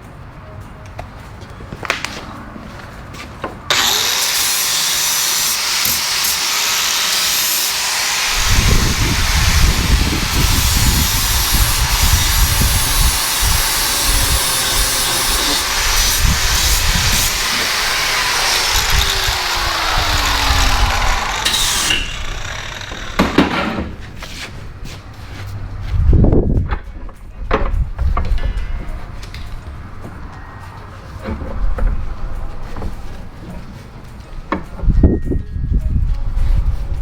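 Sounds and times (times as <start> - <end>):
angle grinder grinding steel: 3.7 - 24.0.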